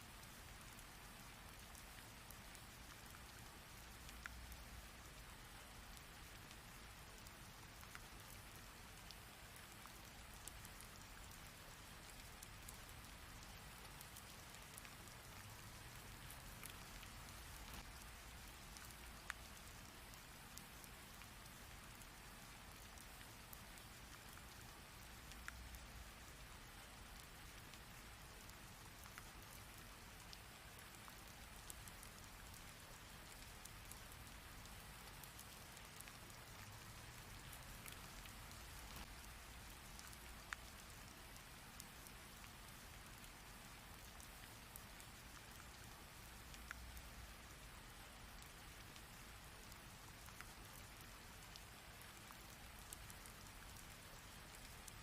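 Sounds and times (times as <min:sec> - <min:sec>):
raindrops clicking: 0:09.8 - 0:20.2, 0:27.0 - 0:41.0.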